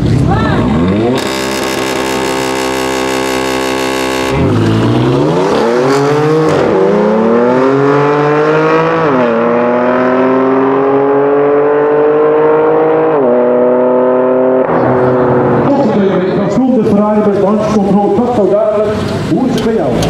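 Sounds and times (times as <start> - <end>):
car engine accelerating hard: 0.0 - 20.0
second car accelerating alongside: 0.6 - 16.6.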